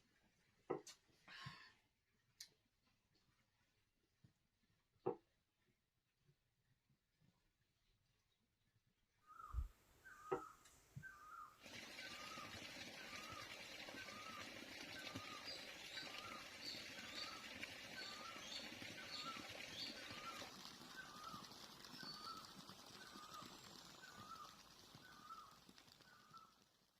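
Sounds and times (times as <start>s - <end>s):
higher bird chirps: 9.2s - 26.5s
bird call repeating: 9.3s - 12.4s.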